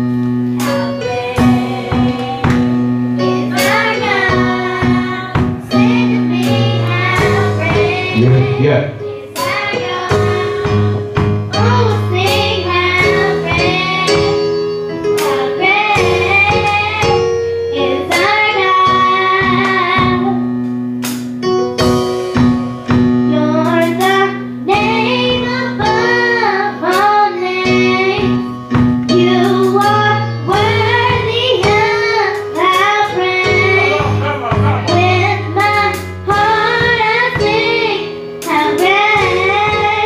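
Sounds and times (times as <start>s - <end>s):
instrumental accompaniment low notes: 0.0s - 40.0s
choir singing: 0.7s - 11.0s.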